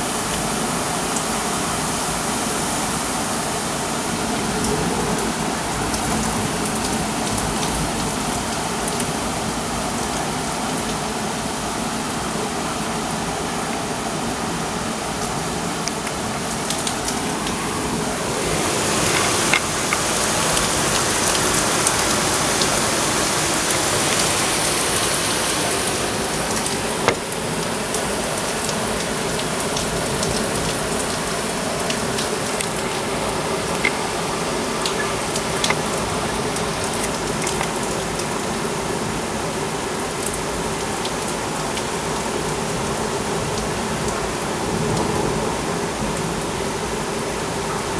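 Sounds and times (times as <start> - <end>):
heavy rain rushing: 0.0 - 47.9
raindrops ticking nearby: 4.4 - 45.4.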